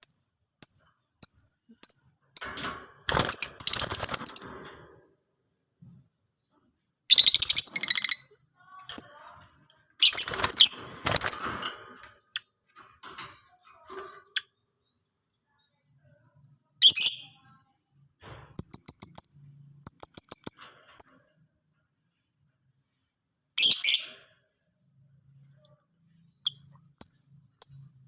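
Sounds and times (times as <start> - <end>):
lovebird high-pitched chirps: 7.1 - 9.4, 16.8 - 17.5, 18.6 - 21.3, 23.6 - 24.2, 26.4 - 28.0.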